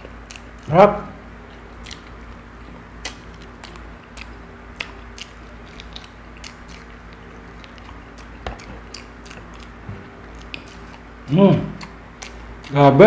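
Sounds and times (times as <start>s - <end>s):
person chewing with mouth smacks: 0.0s - 0.7s, 1.3s - 12.8s
low hum: 0.0s - 13.0s.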